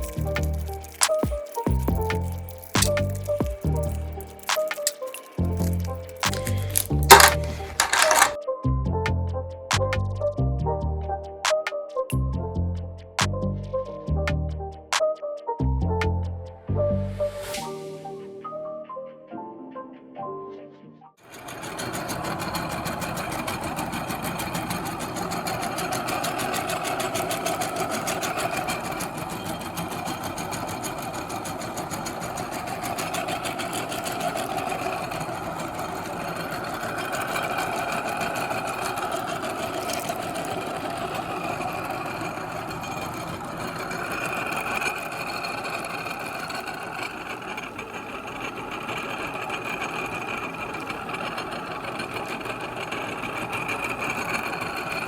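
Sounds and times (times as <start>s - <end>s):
electric meat grinder whirring: 21.3s - 55.0s.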